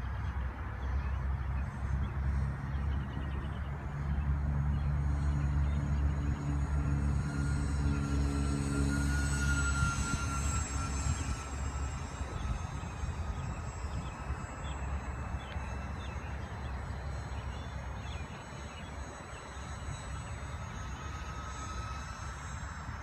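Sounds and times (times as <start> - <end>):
wind rumble on microphone: 0.0 - 18.6
model airplane engine whine: 0.0 - 23.0.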